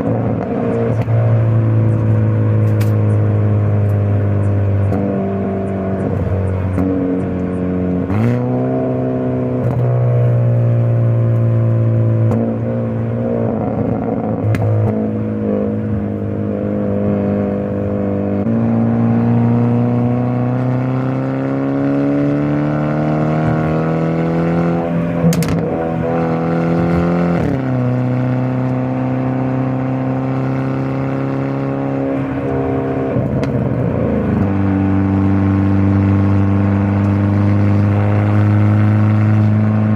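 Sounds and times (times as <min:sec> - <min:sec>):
car engine and exhaust revving: 0:00.0 - 0:39.9
exhaust crack: 0:11.3 - 0:16.1, 0:24.8 - 0:27.8, 0:32.2 - 0:34.6.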